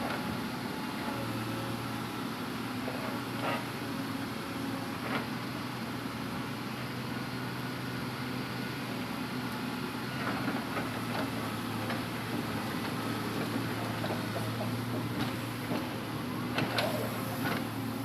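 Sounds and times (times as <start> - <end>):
diesel excavator engine running: 0.0 - 18.0.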